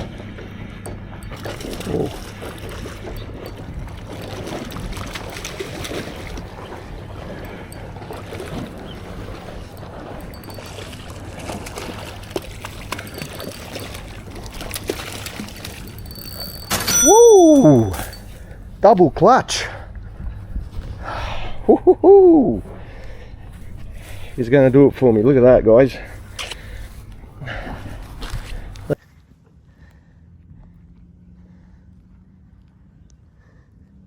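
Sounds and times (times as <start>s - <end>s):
water splashing and trickling: 0.0s - 18.6s.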